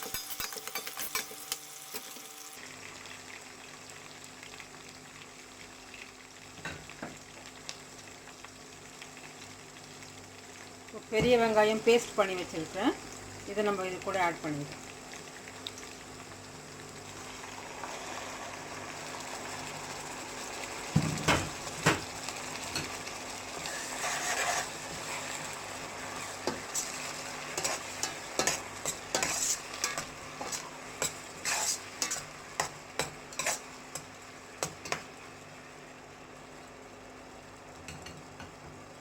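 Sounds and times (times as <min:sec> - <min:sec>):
food sizzling in oil: 0:00.0 - 0:39.0
spoon scraping pan: 0:23.6 - 0:34.1.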